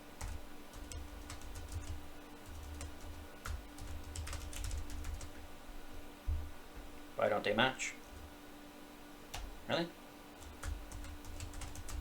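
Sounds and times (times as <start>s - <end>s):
keyboard typing: 0.2s - 5.4s, 10.4s - 12.0s.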